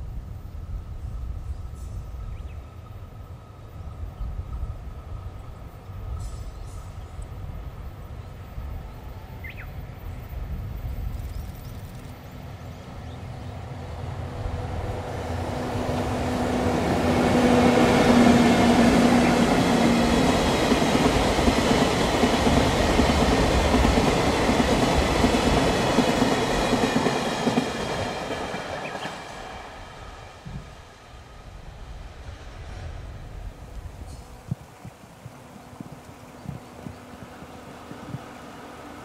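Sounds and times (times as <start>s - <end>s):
locomotive hum: 3.1s - 39.0s
train wheels running over rails: 14.0s - 30.9s.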